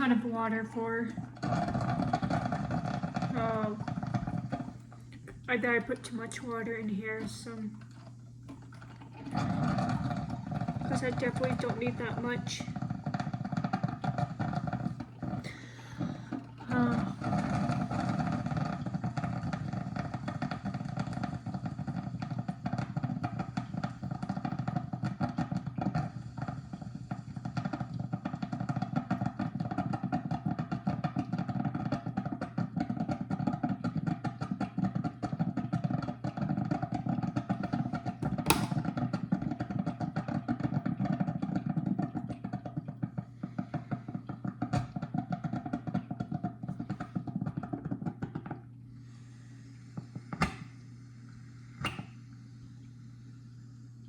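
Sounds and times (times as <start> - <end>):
steady low hum: 0.0 - 28.5, 42.0 - 54.0
coffee maker gurgling and sputtering: 0.0 - 54.0.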